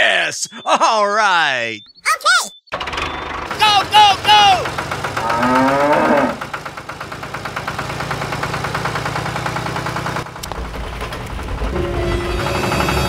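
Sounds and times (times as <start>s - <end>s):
tractor engine idling: 2.7s - 13.0s.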